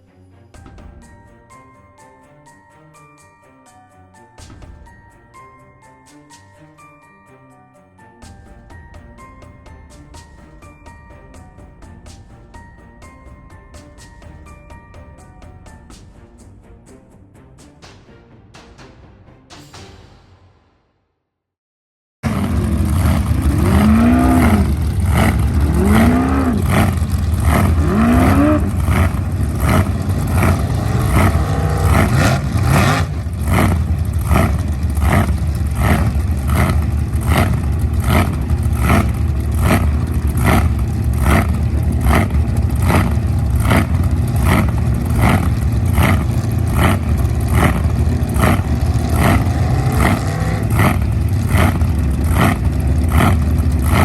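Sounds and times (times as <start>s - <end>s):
boat engine revving: 22.2s - 54.0s
regular engine knock: 22.2s - 54.0s.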